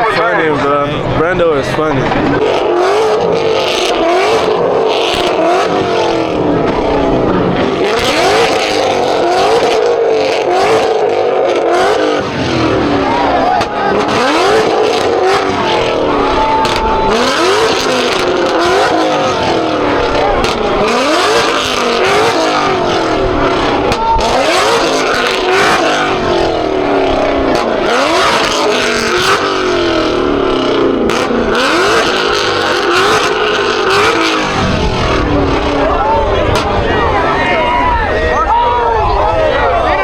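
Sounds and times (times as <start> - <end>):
car engines revving hard: 0.0 - 40.0
dense din: 34.2 - 38.3.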